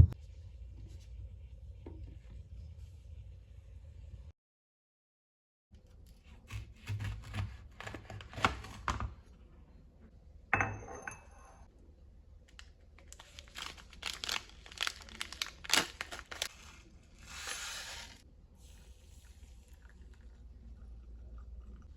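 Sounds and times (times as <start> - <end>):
paper or plastic crinkling: 13.0 - 18.2.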